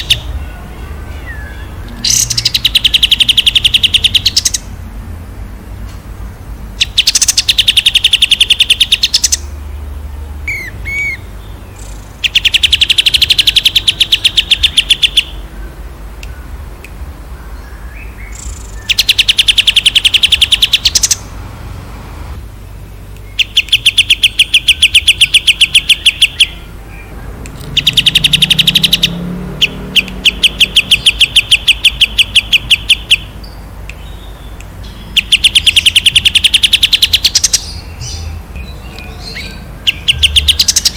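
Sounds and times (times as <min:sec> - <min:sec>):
songbird singing rapid notes: 0:00.0 - 0:04.8, 0:06.6 - 0:21.4, 0:22.6 - 0:40.9
faint bird chirps: 0:23.0 - 0:40.9.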